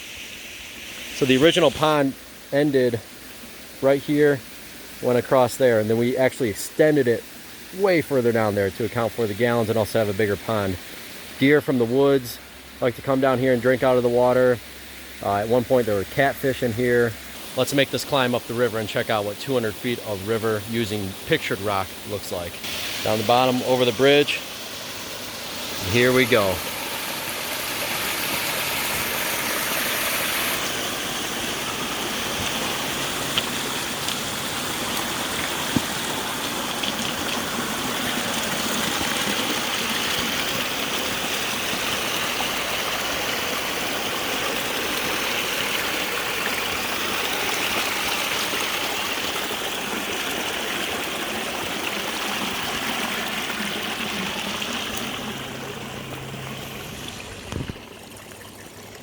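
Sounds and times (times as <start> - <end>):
water rushing over rapids: 15.3 - 59.0.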